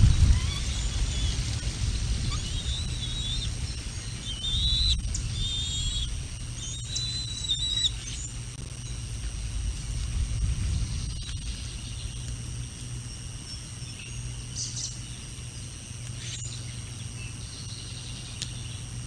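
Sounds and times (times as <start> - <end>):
wind buffeting microphone: 0.0 - 7.0, 9.0 - 13.4
birds chirping and whistling: 0.0 - 9.7, 10.3 - 15.2, 16.2 - 18.8.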